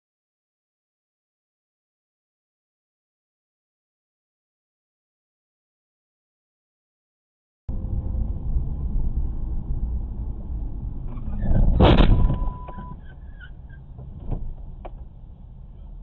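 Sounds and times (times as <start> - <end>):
vehicle road rumble: 7.7 - 16.0
loud crash: 11.1 - 13.0.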